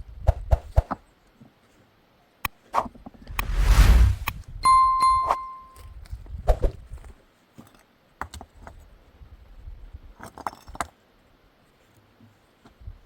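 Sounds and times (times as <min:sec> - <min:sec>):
ringing metal note: 0:04.6 - 0:05.8.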